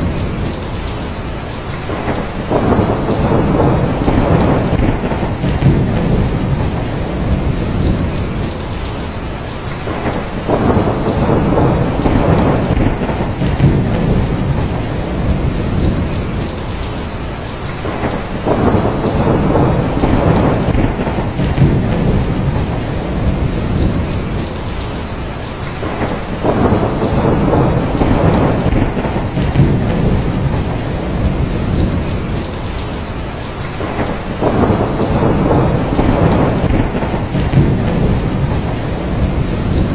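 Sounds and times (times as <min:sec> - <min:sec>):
heavy rain: 0:00.0 - 0:39.9
rolling thunder: 0:00.0 - 0:39.9.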